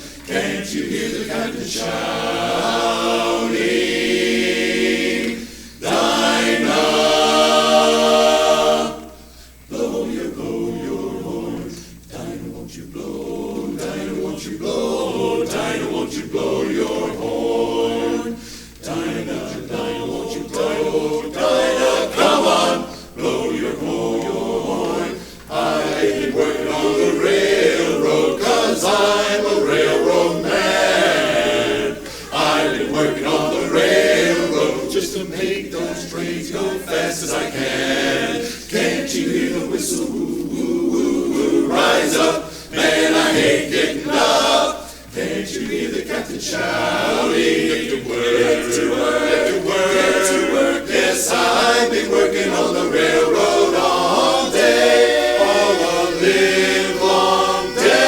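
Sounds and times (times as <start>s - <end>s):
male a cappella chorus singing: 0.0s - 58.0s.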